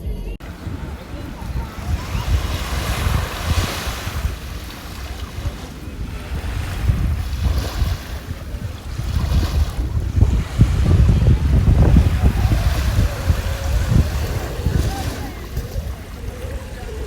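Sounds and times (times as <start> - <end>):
surf washing: 0.4 - 17.0
wind buffeting microphone: 0.4 - 17.0.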